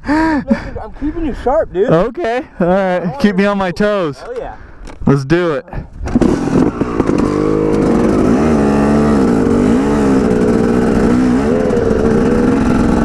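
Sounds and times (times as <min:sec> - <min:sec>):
dirt bike engine running hard: 0:06.1 - 0:13.0.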